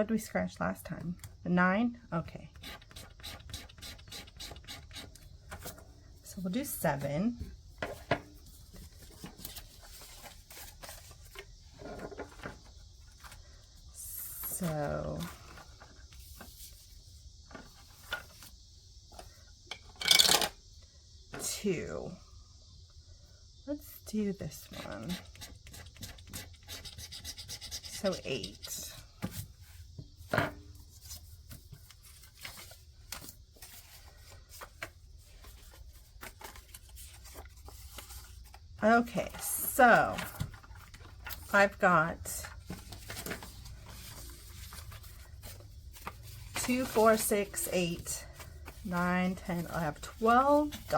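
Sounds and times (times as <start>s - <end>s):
paper rustling: 7.8s - 13.7s, 30.8s - 41.8s, 42.4s - 50.9s
paper money rustling: 42.4s - 50.9s.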